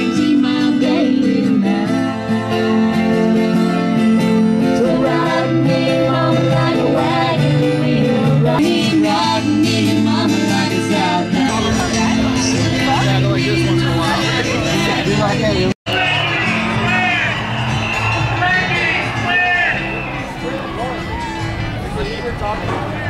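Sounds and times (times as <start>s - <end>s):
person singing: 0.0s - 4.0s, 4.6s - 15.7s
plucked acoustic guitar: 0.0s - 18.8s.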